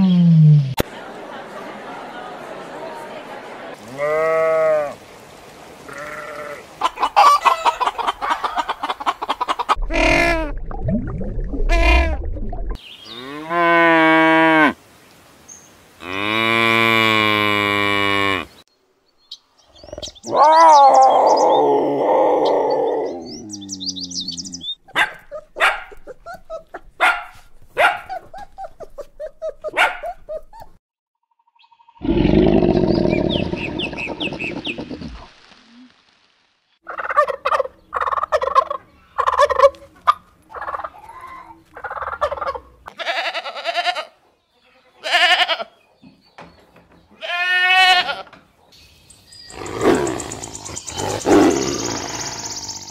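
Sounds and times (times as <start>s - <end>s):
sheep bleating: 3.8s - 5.0s, 5.9s - 6.7s, 42.9s - 45.7s, 47.2s - 48.3s
animal calls: 32.0s - 35.3s, 49.5s - 52.9s.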